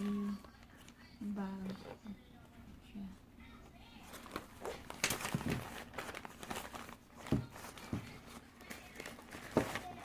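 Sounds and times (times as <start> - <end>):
packaging rustling: 4.0 - 10.0.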